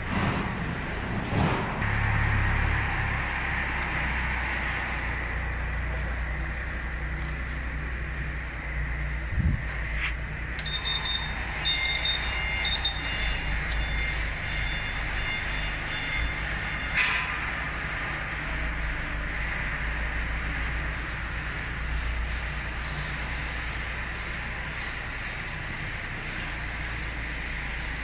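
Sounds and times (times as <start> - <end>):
low machine drone with hiss: 0.0 - 28.0
short high electronic beeps: 10.6 - 17.0.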